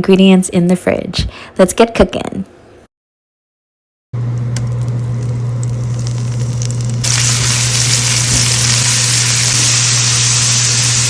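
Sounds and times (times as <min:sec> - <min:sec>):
oil sizzling in a hot pan: 0:05.2 - 0:11.0.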